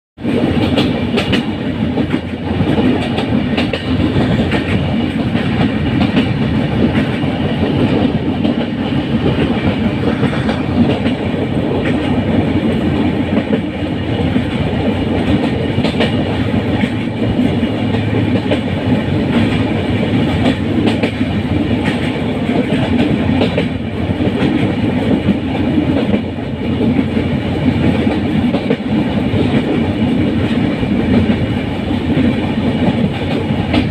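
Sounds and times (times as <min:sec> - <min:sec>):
rail joint clickety-clack: 0:00.2 - 0:33.9
train wheels rumbling on track: 0:00.2 - 0:33.9.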